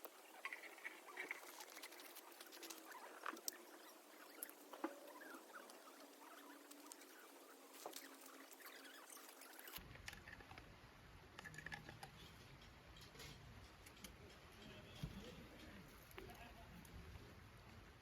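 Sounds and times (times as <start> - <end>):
campfire crackling and popping: 0.0 - 10.6.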